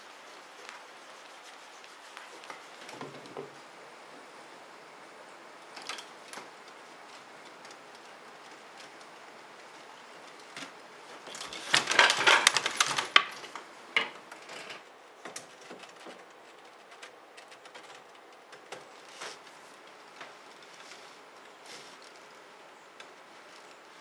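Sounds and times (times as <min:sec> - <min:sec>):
small hard objects clattering: 0:11.2 - 0:14.8.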